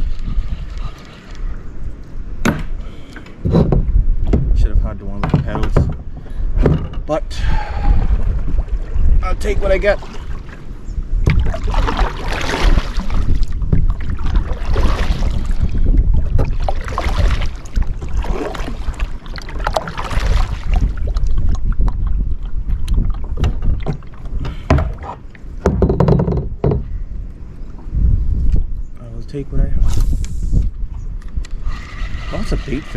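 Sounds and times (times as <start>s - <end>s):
wind rumble on microphone: 0.0s - 32.9s
paddle splashing in water: 9.8s - 25.8s.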